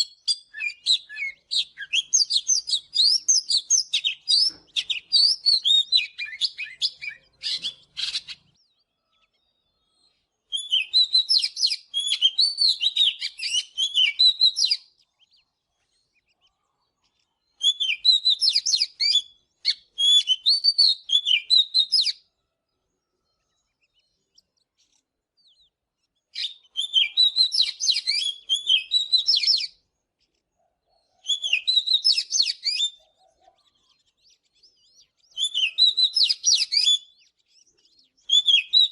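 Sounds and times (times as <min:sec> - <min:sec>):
bird singing whistled warbling notes: 0:00.0 - 0:16.6, 0:17.4 - 0:22.3, 0:25.4 - 0:29.8, 0:31.2 - 0:38.9.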